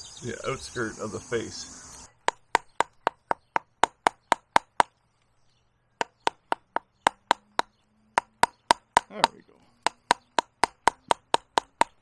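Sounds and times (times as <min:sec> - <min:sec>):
mallet tapping a gouge into wood: 0:02.1 - 0:04.9, 0:06.0 - 0:12.0.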